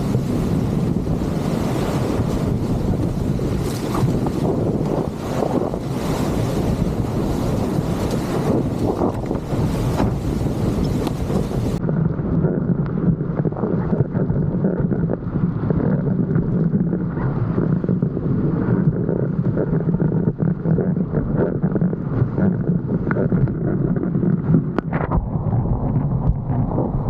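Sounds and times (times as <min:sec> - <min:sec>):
water rushing and spraying: 0:00.0 - 0:11.8
wind buffeting microphone: 0:00.0 - 0:27.0.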